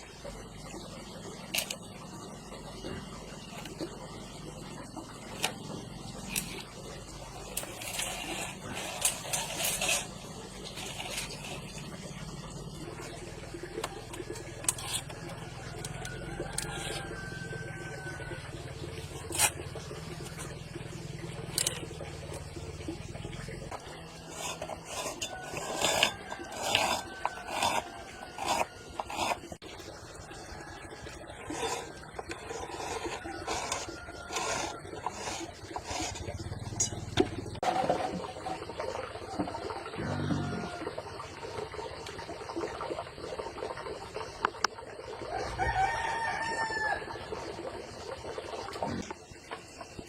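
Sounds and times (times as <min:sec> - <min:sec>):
rough scraping strokes: 0:05.2 - 0:20.7, 0:23.7 - 0:29.6, 0:31.3 - 0:38.0
rooster crowing: 0:14.9 - 0:18.7, 0:40.0 - 0:40.9, 0:45.3 - 0:47.3.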